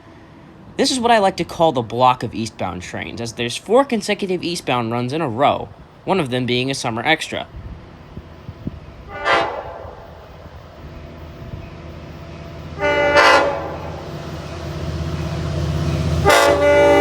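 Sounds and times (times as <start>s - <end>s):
train engine rumble: 0.0s - 17.0s
train horn blasts: 9.1s - 10.3s, 12.7s - 14.6s, 15.4s - 17.0s.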